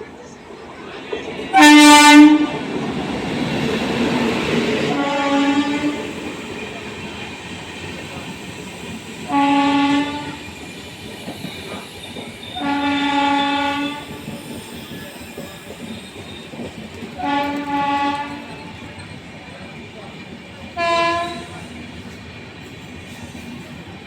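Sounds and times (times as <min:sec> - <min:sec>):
train running rumble: 0:00.0 - 0:24.0
locomotive horn blasts: 0:01.5 - 0:02.5, 0:04.9 - 0:06.1, 0:09.3 - 0:10.4, 0:12.6 - 0:14.2, 0:17.2 - 0:18.5, 0:20.8 - 0:21.6.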